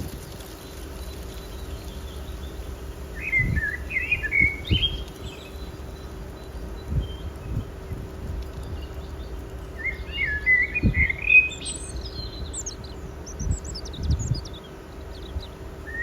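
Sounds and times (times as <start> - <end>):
low outdoor rumble: 0.0 - 16.0
songbird warbling chirps: 0.2 - 16.0.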